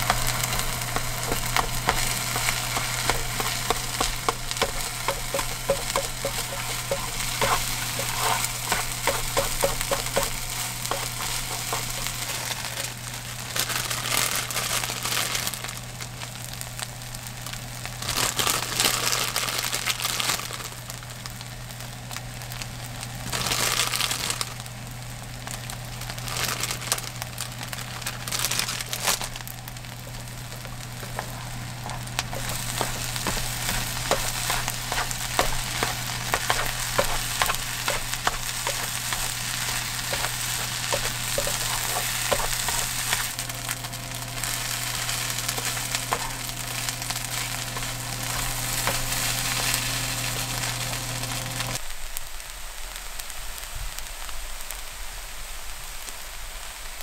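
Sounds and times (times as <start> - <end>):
chopsticks stirring and scraping: 0.0 - 13.0, 30.0 - 51.8
steady low hum: 0.0 - 13.5, 24.6 - 51.8
plastic bag crinkling: 0.0 - 16.3, 17.9 - 20.9, 23.3 - 24.7, 25.5 - 51.8
fried rice sizzling in a pan: 0.0 - 57.0.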